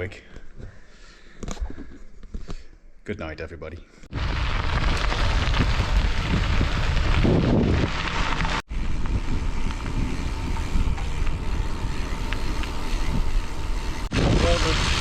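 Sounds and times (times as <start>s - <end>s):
wind rushing over microphone: 4.1s - 15.0s.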